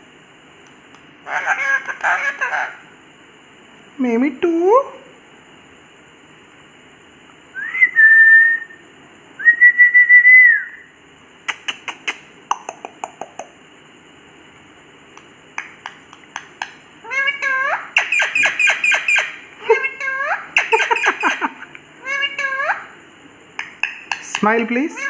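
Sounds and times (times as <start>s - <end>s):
parrot squawky chattering: 1.2s - 2.9s, 16.3s - 23.0s, 23.6s - 25.0s
parrot sharp clicks: 11.5s - 13.5s, 15.2s - 16.8s, 23.6s - 24.5s
parrot whistling: 17.1s - 19.4s.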